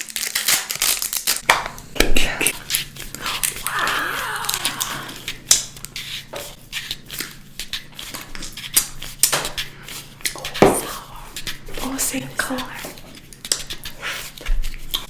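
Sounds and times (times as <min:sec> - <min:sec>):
candy packaging crinkling: 0:00.0 - 0:05.9.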